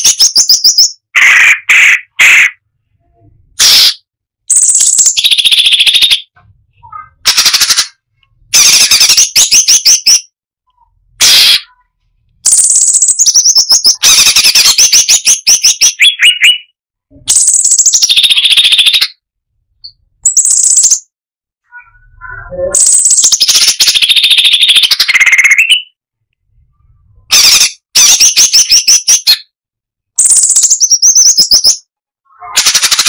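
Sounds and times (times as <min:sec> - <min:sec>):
bird singing rapid trills: 0:04.5 - 0:06.4, 0:12.5 - 0:16.7, 0:17.3 - 0:19.2, 0:19.8 - 0:21.1, 0:22.0 - 0:26.0, 0:30.2 - 0:31.9.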